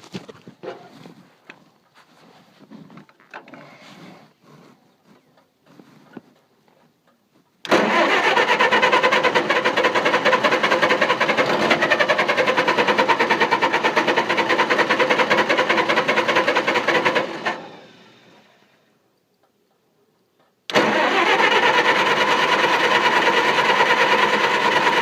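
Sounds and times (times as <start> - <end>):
engine cranking on starter: 7.6 - 18.8, 20.7 - 25.0
engine spinning down: 7.7 - 18.9, 20.7 - 25.0.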